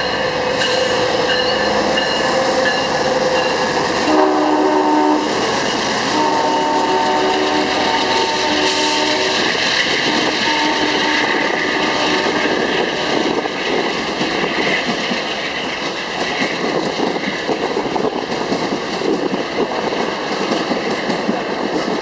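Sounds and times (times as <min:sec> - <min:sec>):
train wheels roaring on rail: 0:00.0 - 0:22.0
train horn: 0:02.1 - 0:05.5, 0:06.1 - 0:13.5.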